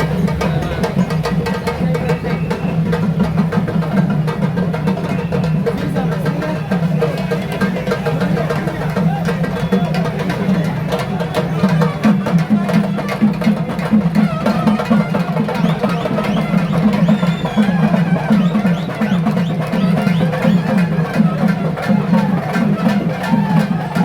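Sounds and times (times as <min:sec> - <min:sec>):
fast drumming: 0:00.0 - 0:24.0
crowd chanting: 0:05.1 - 0:24.0.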